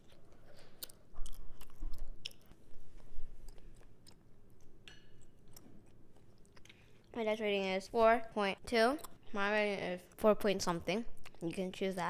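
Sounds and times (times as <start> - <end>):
person chewing: 0.0 - 7.2.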